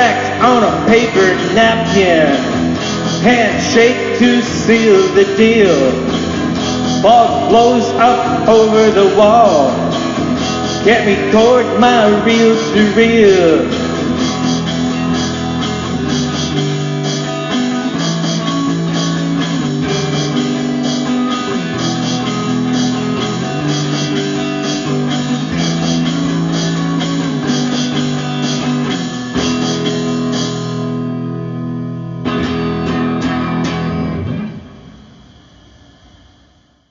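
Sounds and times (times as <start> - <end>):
guitar rock music: 0.0 - 35.7.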